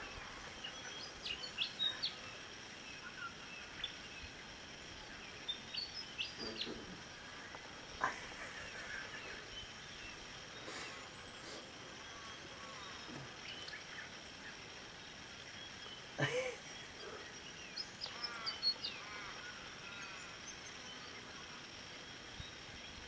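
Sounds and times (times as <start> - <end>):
low outdoor background: 0.0 - 23.0
wild birds chirping: 0.0 - 23.0
lower bird call: 5.2 - 14.6.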